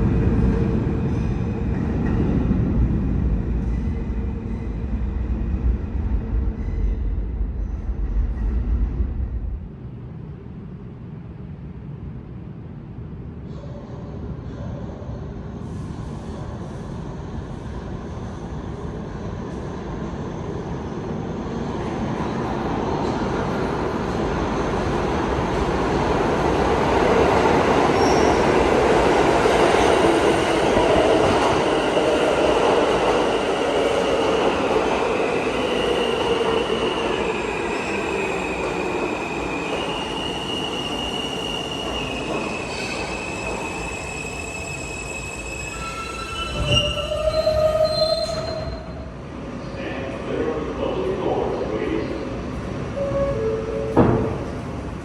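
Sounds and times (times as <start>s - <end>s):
subway train rumbling past: 0.0s - 55.0s
train wheels squealing: 27.9s - 28.6s, 33.3s - 49.8s.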